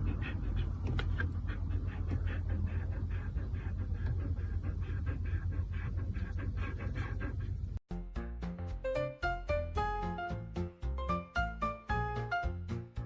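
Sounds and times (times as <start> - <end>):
dog panting: 0.0 - 7.8
low hum: 0.0 - 7.8.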